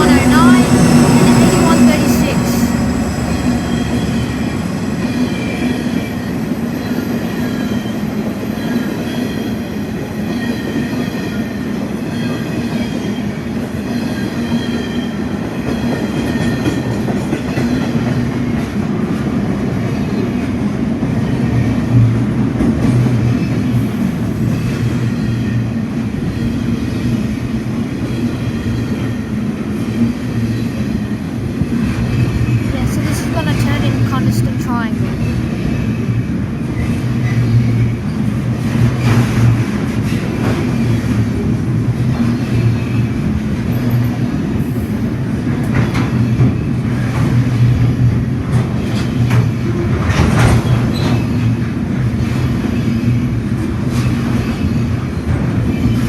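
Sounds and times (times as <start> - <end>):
locomotive engine drone: 0.0 - 6.6.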